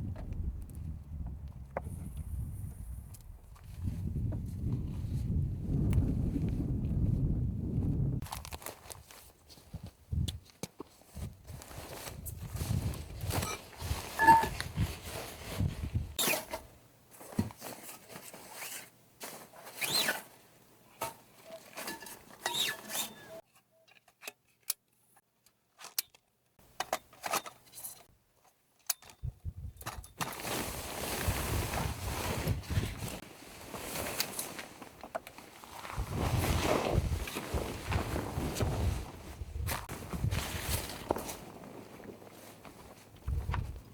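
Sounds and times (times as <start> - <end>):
shuffling footsteps: 30.4 - 43.9.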